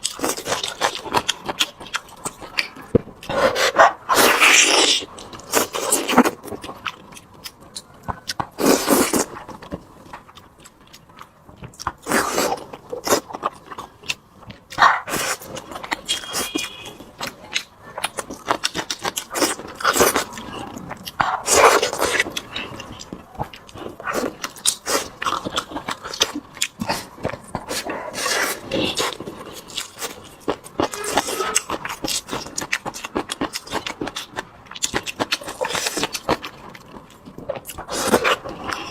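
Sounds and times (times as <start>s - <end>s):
chewing and smacking: 0.0s - 38.9s.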